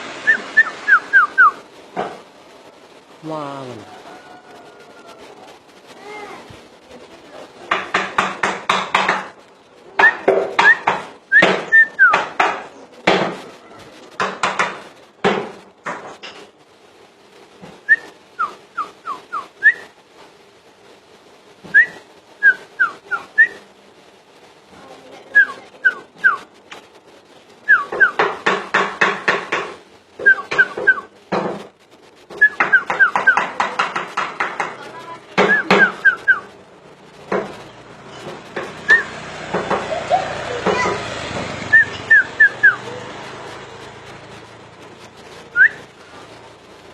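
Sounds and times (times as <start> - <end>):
bird whistled notes sliding down: 0.2 - 1.6, 10.0 - 12.1, 17.8 - 19.9
bird song with harsh chattering: 10.0 - 12.4, 35.4 - 36.6.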